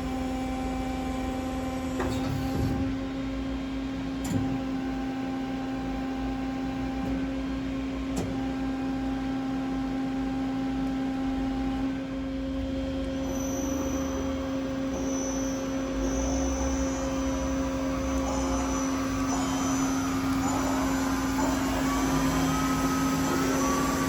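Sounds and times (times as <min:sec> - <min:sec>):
electric machine hum: 0:00.0 - 0:24.0
faint high whine: 0:13.1 - 0:24.0.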